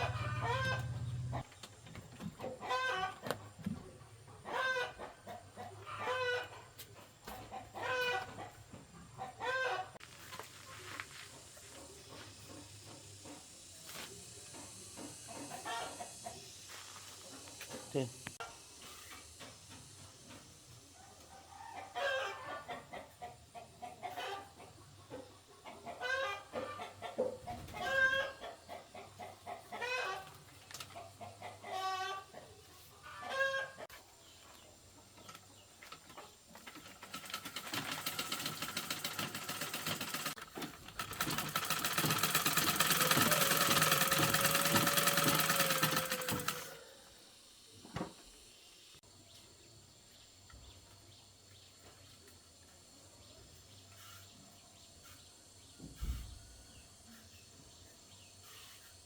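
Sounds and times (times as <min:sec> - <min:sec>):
chickens clucking: 0:00.0 - 0:10.0, 0:14.2 - 0:16.6, 0:21.3 - 0:36.6
mechanical running noise: 0:36.7 - 0:46.8.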